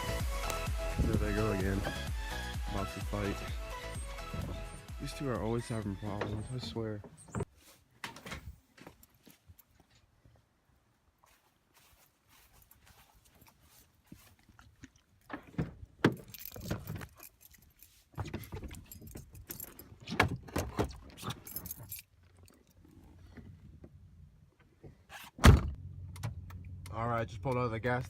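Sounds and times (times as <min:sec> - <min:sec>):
clinking and rattling: 0:15.3 - 0:22.8.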